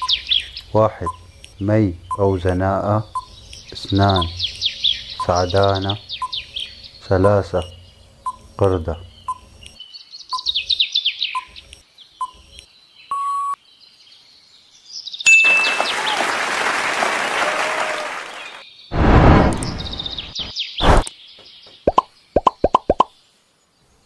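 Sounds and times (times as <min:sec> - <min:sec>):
quick falling chirps: 0:18.5 - 0:21.1
loud short burst: 0:18.9 - 0:20.0.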